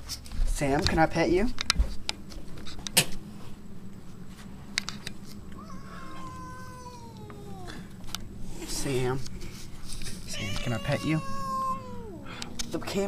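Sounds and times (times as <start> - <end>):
cat yowling: 5.6 - 8.0, 10.2 - 12.6.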